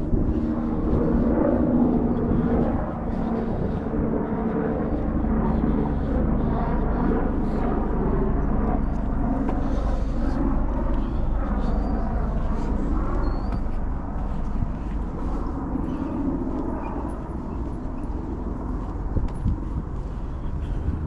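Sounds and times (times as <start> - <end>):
helicopter droning overhead: 0.0 - 21.0
wind buffeting microphone: 0.0 - 21.0.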